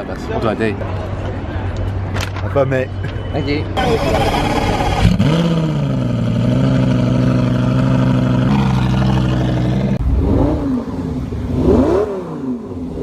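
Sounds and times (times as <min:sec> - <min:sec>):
sports car engine revving: 0:03.8 - 0:13.0.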